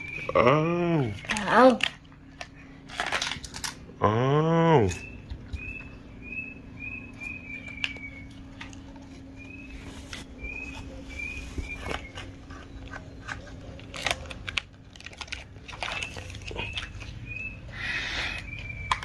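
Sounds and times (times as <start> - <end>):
steady low hum: 0.0 - 19.0
bird chirping: 4.9 - 8.6, 9.2 - 13.2, 15.9 - 19.0.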